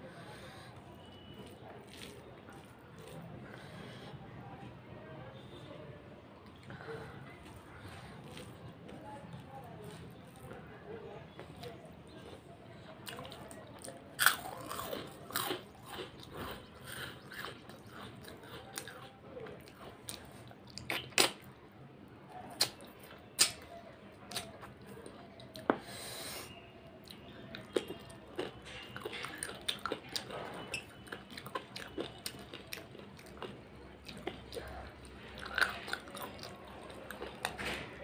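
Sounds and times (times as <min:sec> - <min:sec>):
wet chewing: 0:00.6 - 0:04.2, 0:06.5 - 0:10.6, 0:11.3 - 0:21.6, 0:22.5 - 0:38.0
mouth smacks and clicks: 0:20.7 - 0:21.5, 0:22.6 - 0:23.7.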